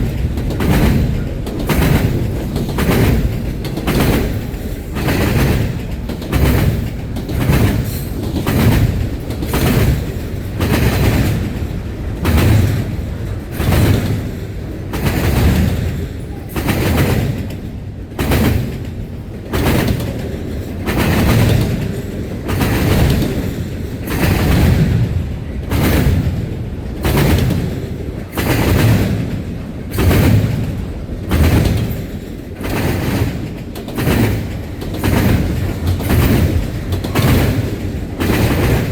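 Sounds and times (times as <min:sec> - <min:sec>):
low rumble of train: 0:00.0 - 0:38.9
train wheels clattering over rail joints: 0:00.0 - 0:38.9.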